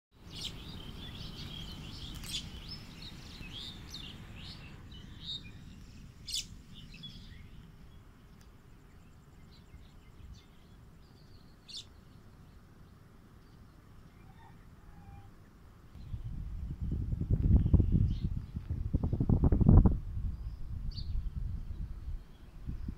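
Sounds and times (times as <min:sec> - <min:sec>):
birds chirping: 0:00.2 - 0:22.9
low rumble: 0:16.0 - 0:22.9.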